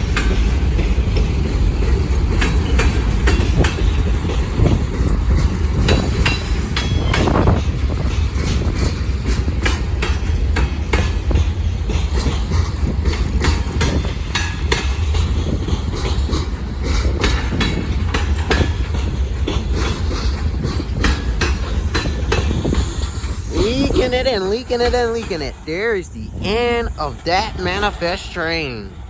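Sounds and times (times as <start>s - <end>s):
freight train rumbling past: 0.0s - 29.0s
wheels clanking over rail joints: 0.0s - 29.0s.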